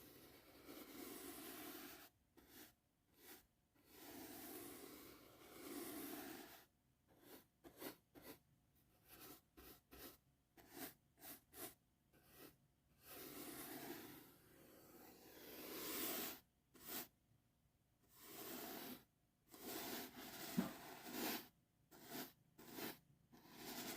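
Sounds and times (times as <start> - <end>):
soft brush strokes: 0.0 - 17.1, 18.1 - 23.9.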